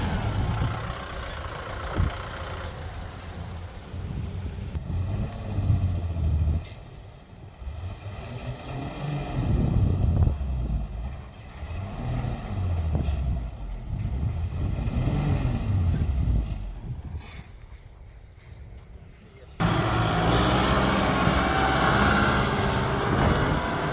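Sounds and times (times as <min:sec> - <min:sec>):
diesel engine revving under load: 0:00.0 - 0:17.8, 0:19.6 - 0:23.9.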